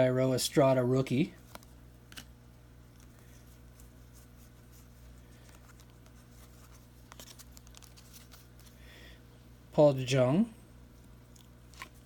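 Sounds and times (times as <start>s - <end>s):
trading cards rustling and clicking: 2.9s - 8.8s.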